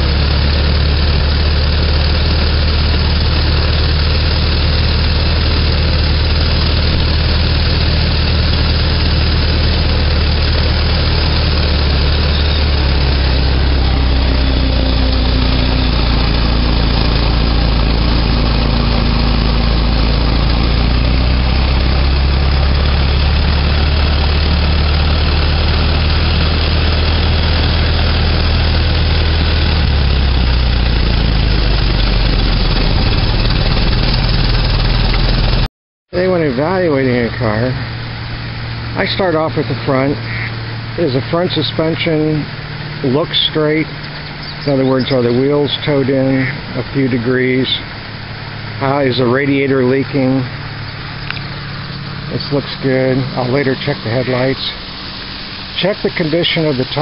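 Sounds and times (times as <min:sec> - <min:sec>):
car engine rumble: 0:00.0 - 0:57.0
rushing noise of moving car: 0:00.0 - 0:57.0.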